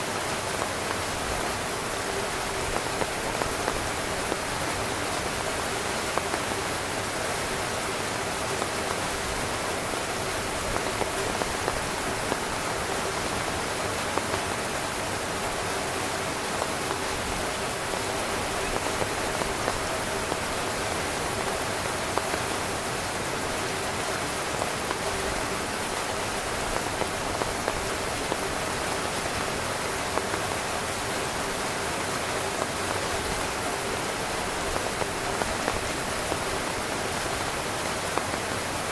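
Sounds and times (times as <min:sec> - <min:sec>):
heavy rain on tent: 0:00.0 - 0:38.9.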